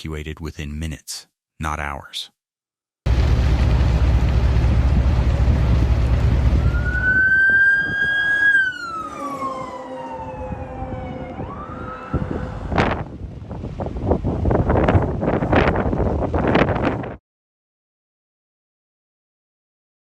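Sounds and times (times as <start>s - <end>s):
loud rushing noise: 3.1s - 17.1s
emergency vehicle siren wailing: 4.9s - 13.3s.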